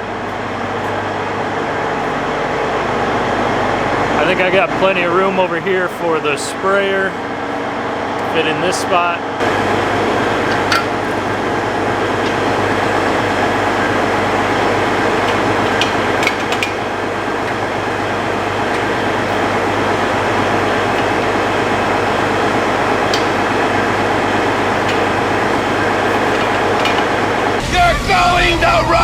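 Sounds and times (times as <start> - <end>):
tractor engine droning: 0.0 - 27.7.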